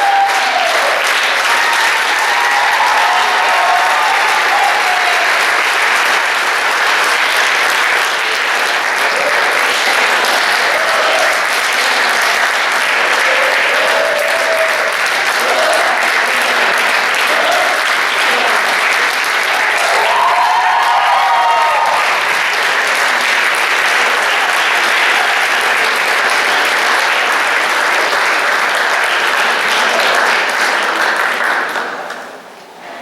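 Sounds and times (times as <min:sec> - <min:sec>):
shouted cheers: 0:00.0 - 0:06.2, 0:09.0 - 0:11.5, 0:13.0 - 0:22.6
audience applauding: 0:00.0 - 0:32.6.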